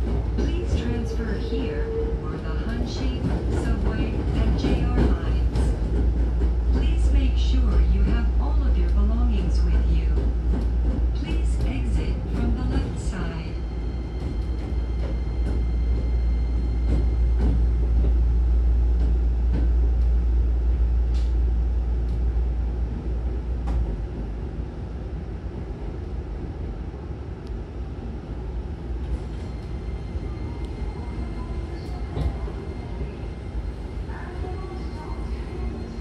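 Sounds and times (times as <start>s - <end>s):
train wheels rumbling: 0.0s - 24.8s
steady train hum: 0.0s - 36.0s
light clicks from train car: 6.4s - 12.9s, 21.0s - 21.4s, 22.0s - 22.3s, 23.6s - 24.0s.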